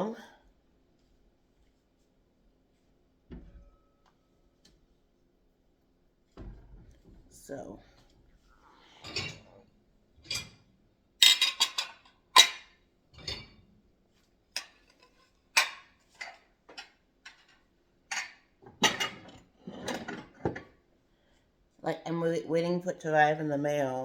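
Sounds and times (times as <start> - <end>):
dishes and cutlery clinking: 9.0 - 9.6, 10.2 - 13.7, 14.5 - 20.8.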